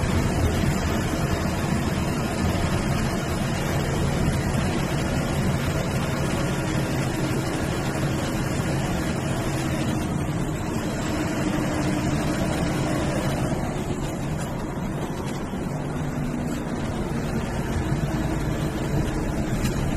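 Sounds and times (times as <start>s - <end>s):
bus engine hum: 0.0s - 19.9s
road noise: 0.0s - 19.9s.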